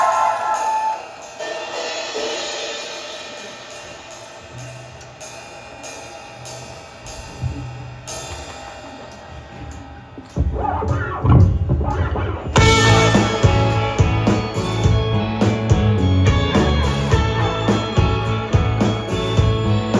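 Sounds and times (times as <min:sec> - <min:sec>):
full band playing loudly: 0:00.0 - 0:06.6, 0:12.5 - 0:19.9
cymbal strikes: 0:00.0 - 0:09.3, 0:12.1 - 0:15.9
held guitar tones: 0:07.2 - 0:19.9
low bass note: 0:10.4 - 0:15.4.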